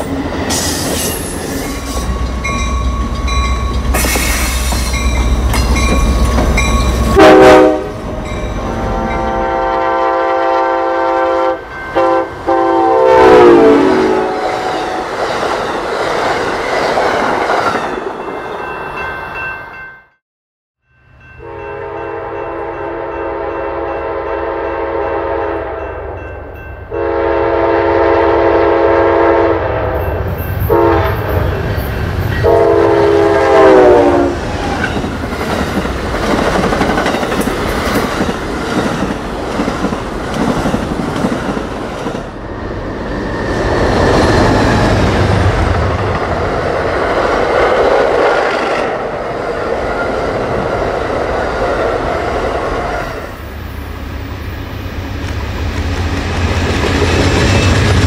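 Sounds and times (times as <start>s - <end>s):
passenger train rumbling past: 0.0s - 19.9s, 20.9s - 58.0s
train air horn blasts: 7.1s - 15.1s, 21.4s - 26.0s, 26.9s - 31.7s, 32.4s - 34.4s.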